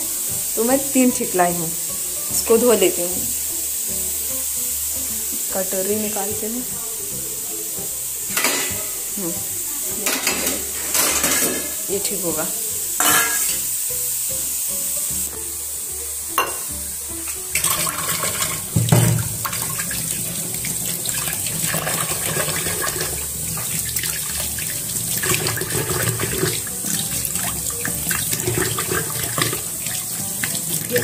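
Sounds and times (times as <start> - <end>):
tap water running into a sink: 0.0 - 31.0
steel dishes knocking: 10.0 - 11.7, 13.0 - 13.5, 16.4 - 16.7, 18.8 - 19.6.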